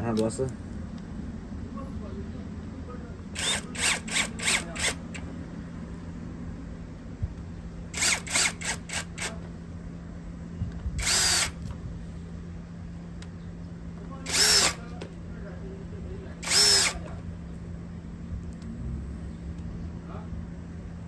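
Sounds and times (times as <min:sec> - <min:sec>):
power screwdriver motor whirring: 0:03.4 - 0:05.2, 0:07.9 - 0:09.4, 0:11.0 - 0:11.7, 0:14.2 - 0:14.9, 0:16.4 - 0:17.1.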